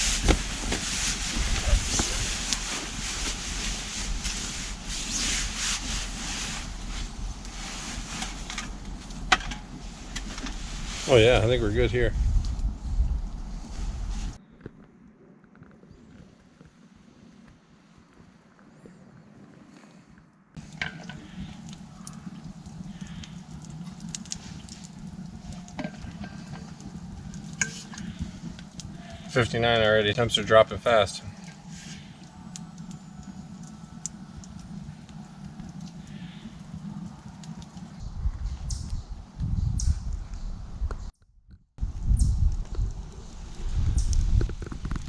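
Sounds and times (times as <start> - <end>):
fabric rustling: 0.0 - 9.1
campfire crackling and popping: 0.0 - 13.5, 20.6 - 38.0, 41.8 - 45.0.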